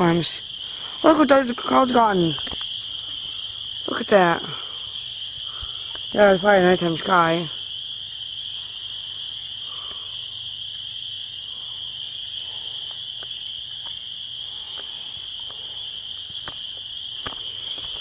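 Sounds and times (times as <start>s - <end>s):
night insects trilling: 0.0s - 18.0s
faint ticks: 5.3s - 6.1s.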